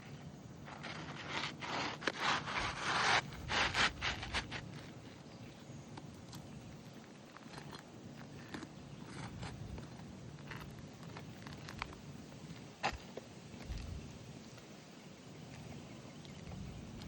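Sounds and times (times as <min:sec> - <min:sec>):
scraping on roof shingles: 0:00.7 - 0:05.1.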